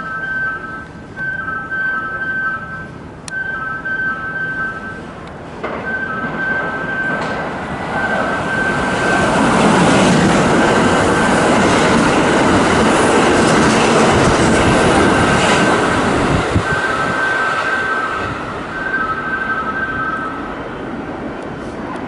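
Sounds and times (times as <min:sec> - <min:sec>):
electric train passing: 0:00.0 - 0:22.0
steady high electronic tone: 0:16.5 - 0:20.4.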